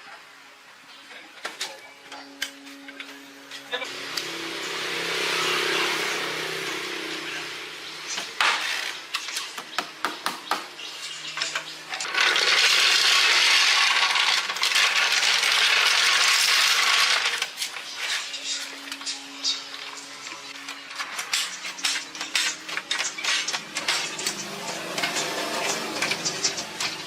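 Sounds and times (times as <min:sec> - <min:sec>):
metal parts clinking: 0:11.3 - 0:27.0.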